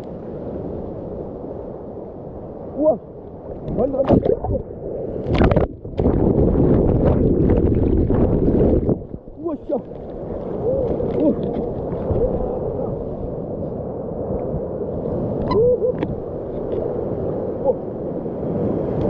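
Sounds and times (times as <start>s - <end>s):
sea water sloshing in waves: 0.0s - 19.0s.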